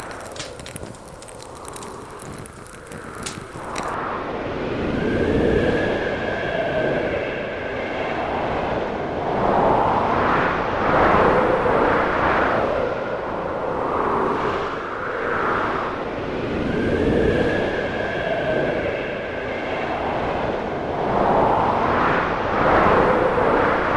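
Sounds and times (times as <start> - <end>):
wind gusting: 0.0 - 4.0.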